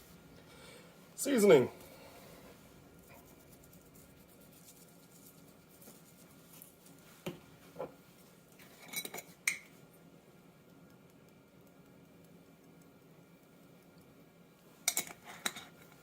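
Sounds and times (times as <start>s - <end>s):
faint room hiss: 0.0s - 16.0s.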